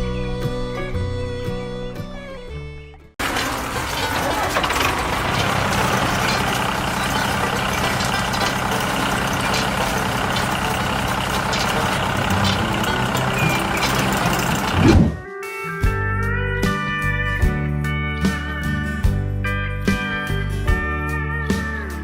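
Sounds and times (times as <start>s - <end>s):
heavy vehicle engine running: 3.2s - 15.2s
mechanical clatter: 3.2s - 15.2s.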